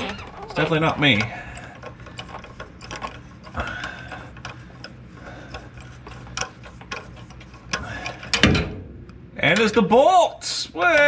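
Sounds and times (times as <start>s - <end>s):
hand ratchet clicking: 0.0s - 8.5s.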